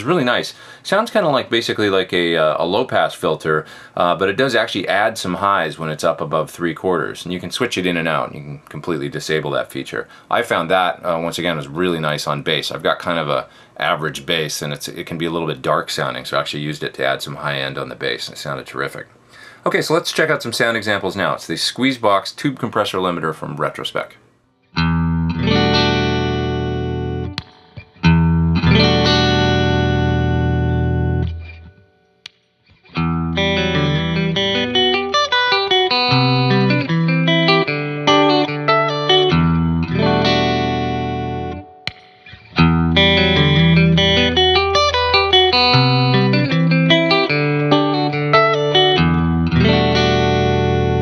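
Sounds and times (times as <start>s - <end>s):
electric guitar chords and notes: 24.8s - 32.0s, 32.7s - 51.0s.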